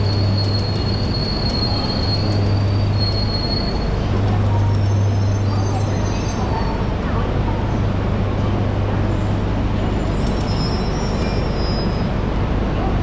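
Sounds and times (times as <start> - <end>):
high steady brake squeal: 0.0 - 6.8, 10.0 - 12.2
train low hum and rumble: 0.0 - 13.0.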